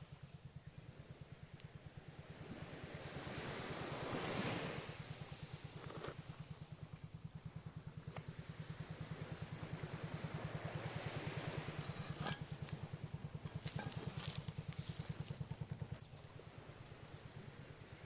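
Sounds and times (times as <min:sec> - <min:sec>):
ocean wave washing in: 0:02.4 - 0:05.7, 0:09.8 - 0:12.1
rapid low throbbing: 0:05.0 - 0:18.0.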